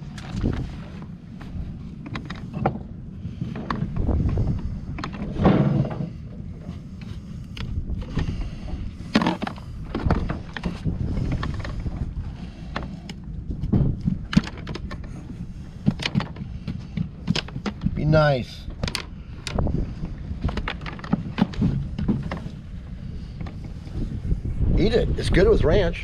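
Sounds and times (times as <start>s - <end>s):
boat engine rumble: 0.0s - 26.0s
knocks and clatter on deck: 5.0s - 6.2s, 13.6s - 15.1s, 20.4s - 22.5s.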